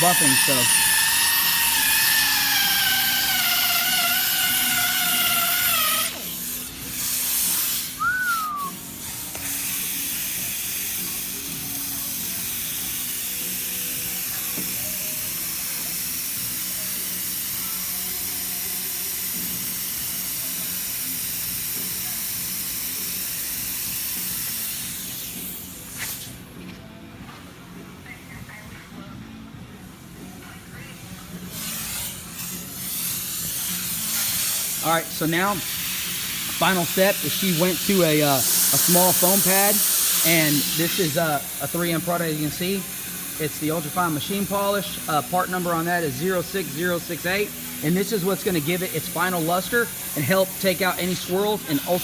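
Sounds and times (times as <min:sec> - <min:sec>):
air-powered polisher whine: 0:00.0 - 0:08.7
compressed air hissing: 0:00.0 - 0:26.5, 0:31.5 - 0:52.0.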